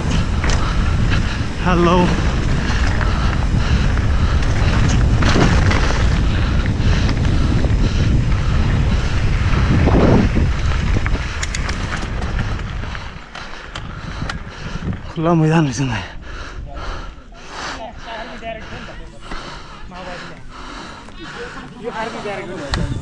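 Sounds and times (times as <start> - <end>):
bike rattling on rough ground: 0.0 - 16.3
wind buffeting microphone: 0.0 - 23.0.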